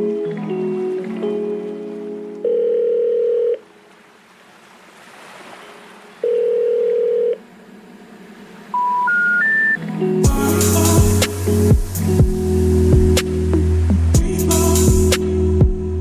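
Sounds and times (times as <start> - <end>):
long telephone tones: 2.4 - 3.7, 6.2 - 7.4
rising short beeps: 8.8 - 9.8.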